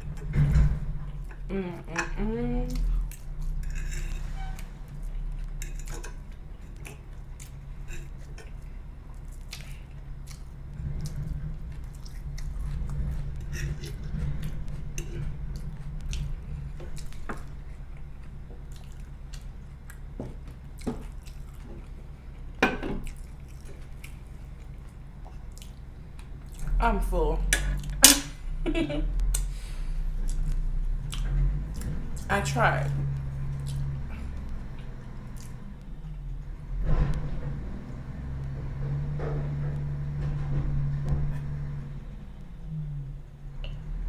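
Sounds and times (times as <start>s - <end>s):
garbage truck engine rumble: 0.0s - 44.0s
eating sounds: 1.0s - 26.8s, 29.3s - 36.3s.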